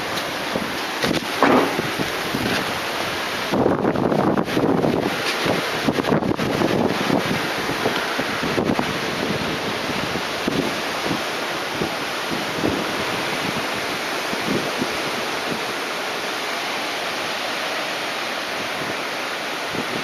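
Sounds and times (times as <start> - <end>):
wind knocking on microphone: 0.0 - 2.8
strong wind rushing: 0.0 - 11.2.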